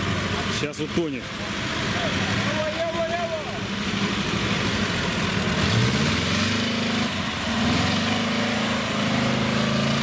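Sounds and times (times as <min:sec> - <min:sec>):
car engine revving under load: 0:00.0 - 0:10.0.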